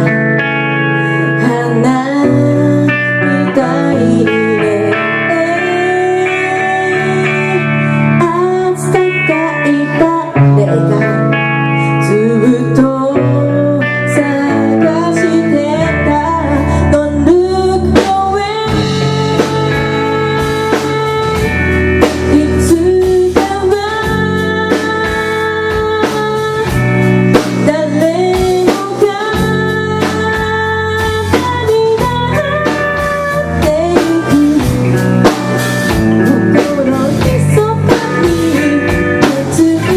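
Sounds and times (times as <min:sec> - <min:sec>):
electric guitar bending notes: 0:00.0 - 0:39.9
live rock band: 0:00.0 - 0:39.9
drums striking: 0:18.0 - 0:39.9.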